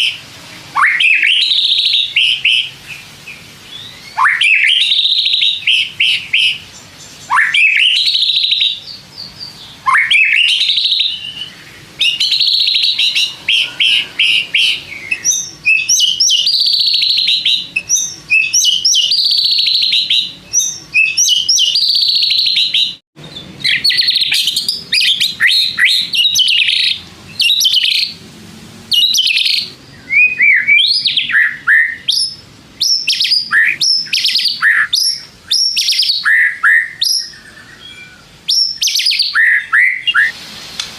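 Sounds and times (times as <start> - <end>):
bird singing whistles and trills: 0.0 - 28.2, 28.9 - 40.4.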